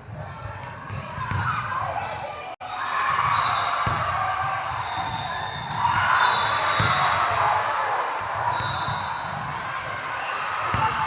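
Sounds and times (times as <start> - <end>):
volleyball hits: 4.8 - 7.6.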